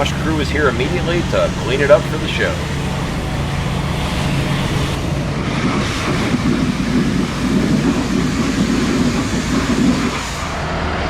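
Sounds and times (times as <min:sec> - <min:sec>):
loud machinery running: 0:00.0 - 0:11.0.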